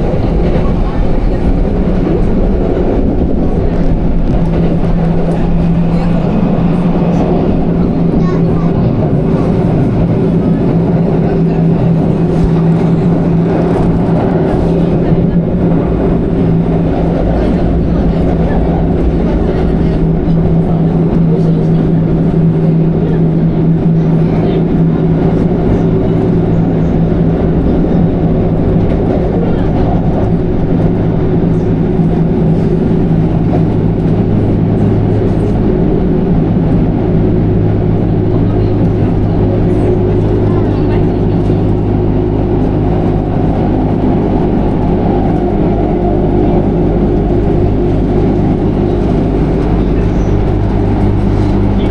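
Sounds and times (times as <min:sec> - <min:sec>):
low hum: 0:00.0 - 0:51.9
train rumble: 0:00.0 - 0:51.9.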